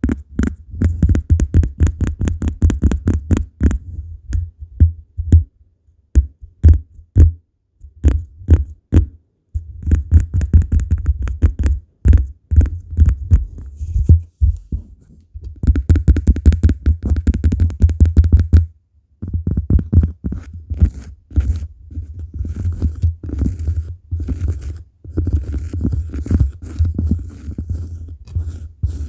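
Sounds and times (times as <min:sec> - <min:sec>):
scratching on cork: 0:00.0 - 0:04.0, 0:09.6 - 0:29.0
rapid tapping on cork: 0:00.0 - 0:05.5, 0:09.8 - 0:13.4, 0:15.4 - 0:29.0.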